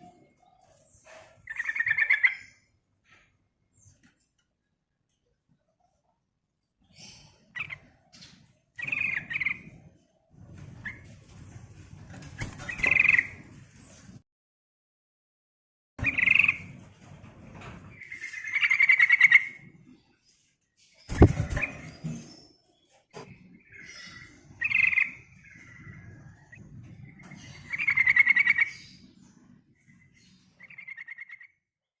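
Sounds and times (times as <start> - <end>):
bird calling in trilled phrases: 1.4 - 2.7.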